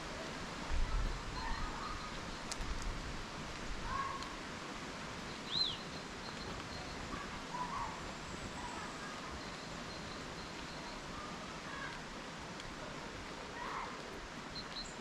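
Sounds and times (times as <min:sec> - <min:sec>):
background hiss: 0:00.0 - 0:15.0
small birds chirping: 0:00.8 - 0:02.8, 0:05.2 - 0:12.0, 0:13.6 - 0:15.0.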